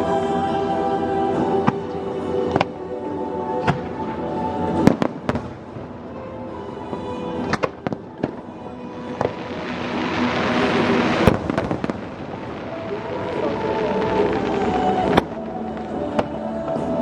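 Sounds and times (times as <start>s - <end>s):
music playing: 0.0s - 17.0s
crackling hiss: 3.7s - 17.0s
fireworks bangs: 4.8s - 16.4s.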